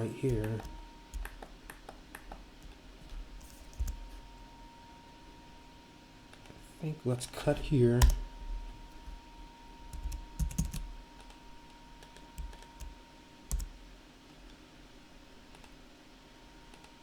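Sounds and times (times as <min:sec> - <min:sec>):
faint high-pitched hum: 0:00.0 - 0:17.0
keyboard and mouse clicks: 0:00.3 - 0:04.0, 0:07.6 - 0:08.2, 0:10.0 - 0:11.4.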